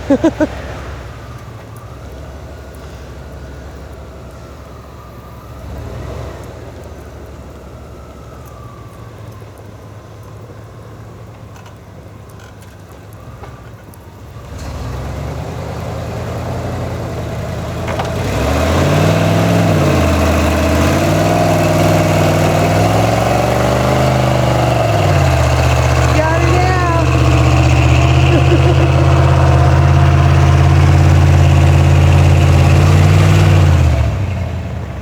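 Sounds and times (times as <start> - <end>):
pickup truck engine revving: 0.0 - 1.2, 14.4 - 35.0.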